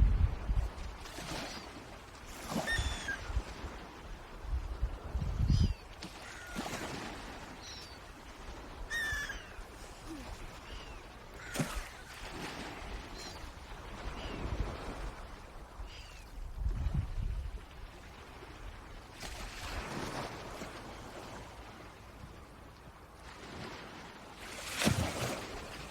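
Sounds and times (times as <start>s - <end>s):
low wind rumble: 0.0s - 1.0s, 3.2s - 5.8s, 16.4s - 17.8s
high falling bird calls: 2.7s - 3.3s.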